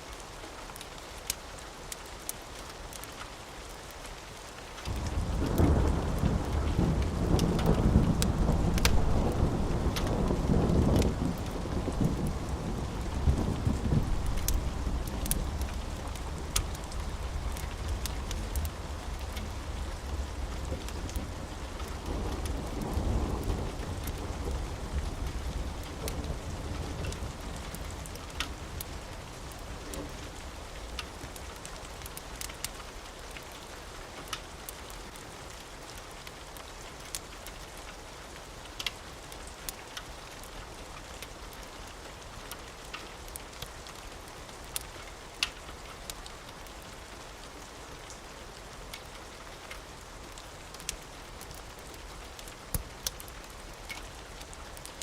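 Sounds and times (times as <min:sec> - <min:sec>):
steady rain: 0:00.0 - 0:55.0
wood fire crackling: 0:00.1 - 0:55.0
low rumble of thunder: 0:04.9 - 0:32.1.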